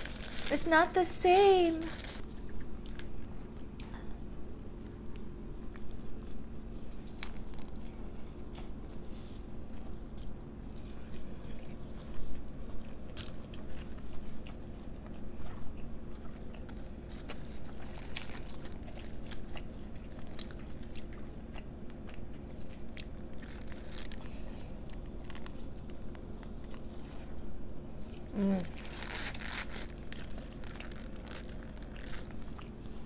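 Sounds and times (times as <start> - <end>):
crisp crunching bites: 17.1 - 19.5, 22.8 - 26.9, 28.4 - 32.8.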